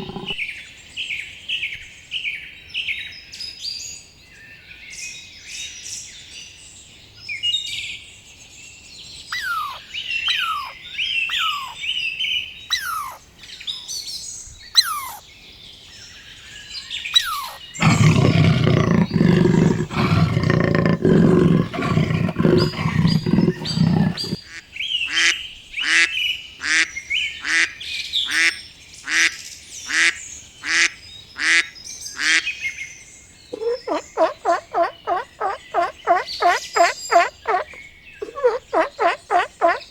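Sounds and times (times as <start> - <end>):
birds chirping: 0.0 - 0.5, 17.2 - 24.4, 33.5 - 39.9.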